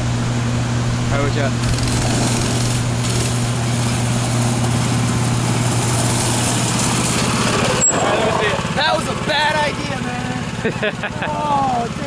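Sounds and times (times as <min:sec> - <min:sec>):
small engine running steadily: 0:00.0 - 0:12.0.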